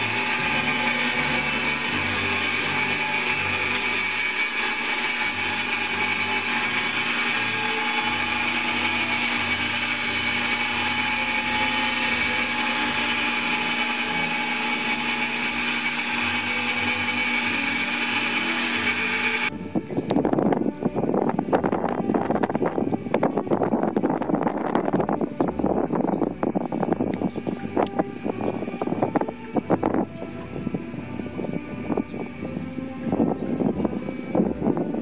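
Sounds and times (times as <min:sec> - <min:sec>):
mechanical engine running: 0:00.0 - 0:19.6
motor and gearing whine: 0:00.0 - 0:35.0.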